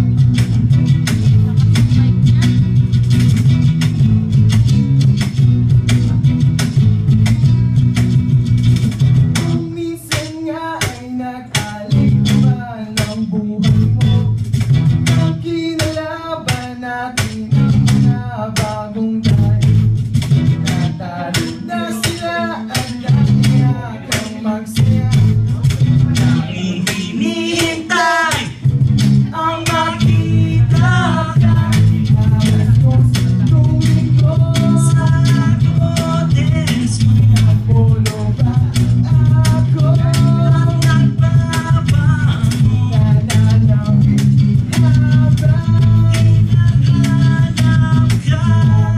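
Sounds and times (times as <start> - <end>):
acoustic guitar strumming: 0.0 - 48.9
steady drum beat: 0.0 - 48.9
person singing: 20.5 - 48.9.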